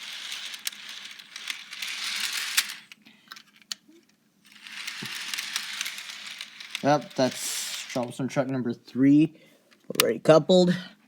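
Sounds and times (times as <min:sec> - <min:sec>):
model train motor hiss: 0:00.0 - 0:02.9, 0:04.5 - 0:08.2.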